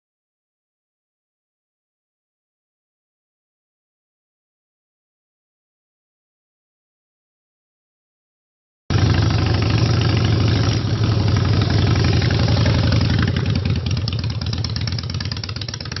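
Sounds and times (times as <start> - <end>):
motorcycle engine running: 8.9 - 16.0.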